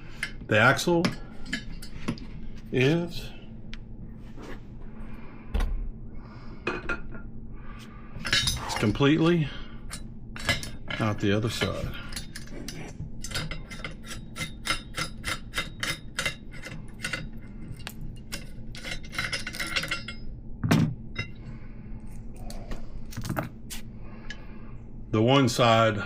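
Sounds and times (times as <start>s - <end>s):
metal parts clinking: 8.2s - 9.0s, 10.4s - 20.2s.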